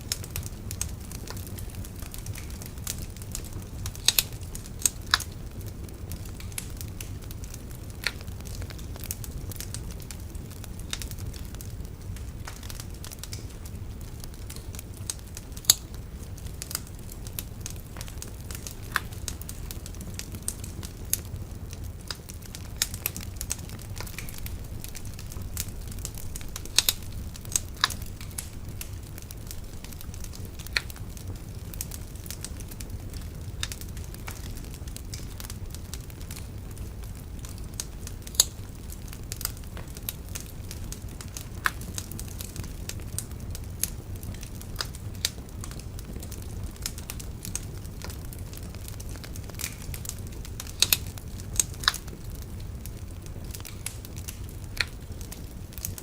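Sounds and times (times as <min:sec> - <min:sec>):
bonfire crackling and popping: 0:00.0 - 0:56.0.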